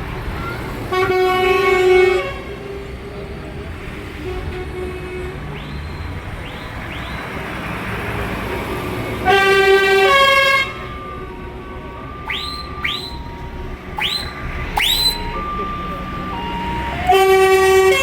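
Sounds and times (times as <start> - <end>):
engine rumble: 0.0 - 18.0
vehicle horn blast: 0.9 - 2.7, 4.2 - 6.0, 9.2 - 10.9, 14.0 - 18.0
rising siren-like whoops: 10.0 - 18.0.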